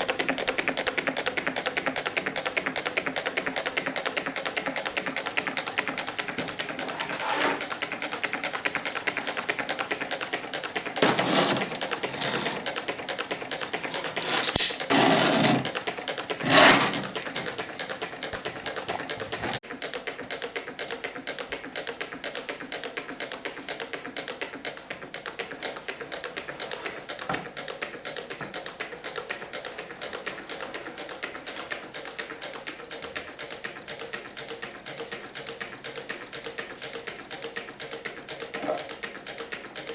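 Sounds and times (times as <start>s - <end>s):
model engine clattering: 0.0s - 39.9s.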